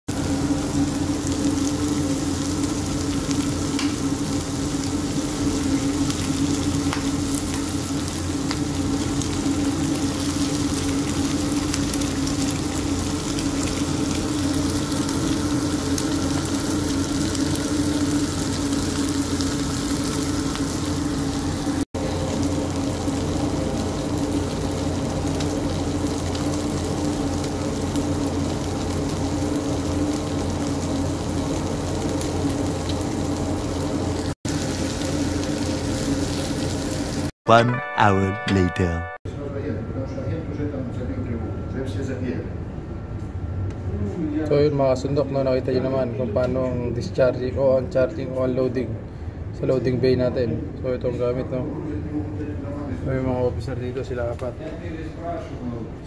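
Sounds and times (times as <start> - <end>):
meat sizzling in a pan: 0.1 - 37.3.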